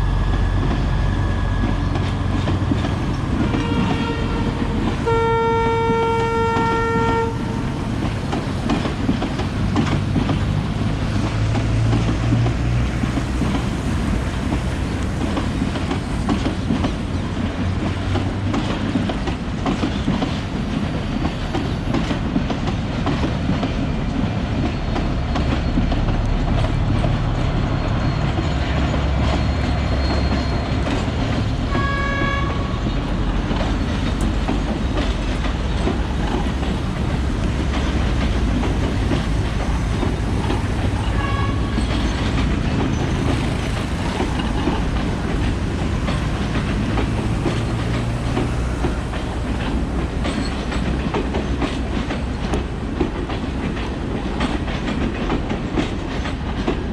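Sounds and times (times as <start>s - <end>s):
train rumble and wheel clatter: 0.0s - 56.9s
train horn: 3.3s - 7.9s, 31.6s - 33.1s, 40.8s - 42.1s.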